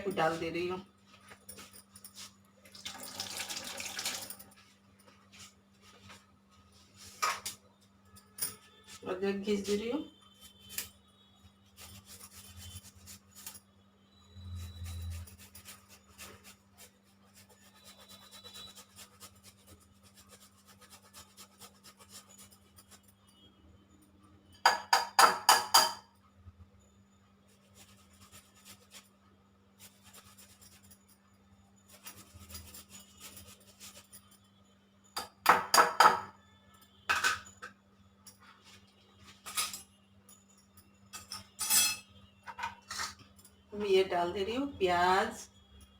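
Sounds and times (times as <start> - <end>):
ginger grated on hand grater: 14.5 - 22.9.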